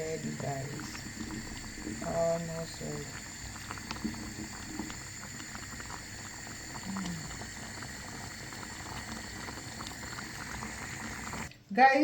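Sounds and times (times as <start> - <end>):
sauce bubbling in a pot: 0.0 - 11.5.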